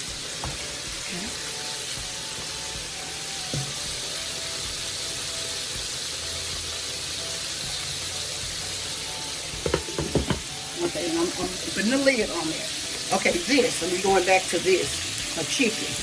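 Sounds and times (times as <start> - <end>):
food sizzling in a pot: 0.0 - 16.0
soft knock: 9.6 - 10.5.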